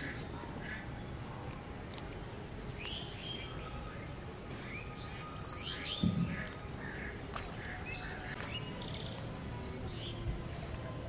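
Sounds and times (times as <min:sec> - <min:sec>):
birds chirping: 0:00.0 - 0:11.0
high-pitched whine: 0:00.0 - 0:11.0
outdoor background hiss: 0:00.0 - 0:11.0
low thump: 0:06.0 - 0:06.5.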